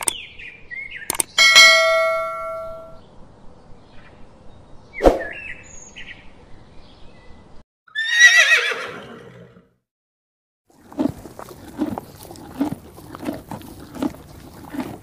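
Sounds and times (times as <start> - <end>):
sharp click: 0.0 - 0.2, 1.1 - 1.4
ringing ding: 1.4 - 3.0
horse whinnying: 7.9 - 9.6.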